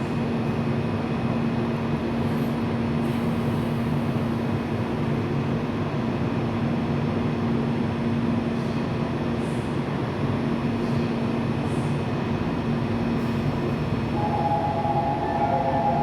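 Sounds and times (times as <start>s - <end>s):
electric train rumbling: 10.0s - 16.0s.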